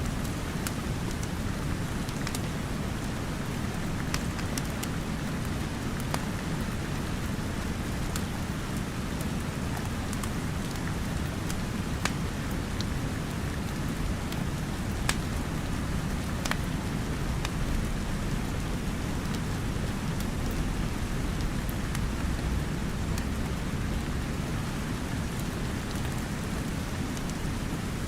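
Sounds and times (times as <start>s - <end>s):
rain falling: 0.0s - 28.0s
wood fire crackling and popping: 0.3s - 1.3s, 2.1s - 2.5s, 3.6s - 6.9s, 9.7s - 12.9s, 14.3s - 15.5s, 16.1s - 17.9s, 19.3s - 23.6s.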